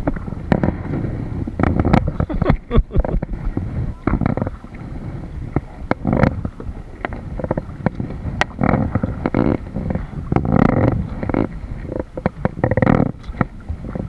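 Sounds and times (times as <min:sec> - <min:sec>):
knocks and splashes: 0:00.0 - 0:04.9
wind on microphone: 0:00.0 - 0:14.0.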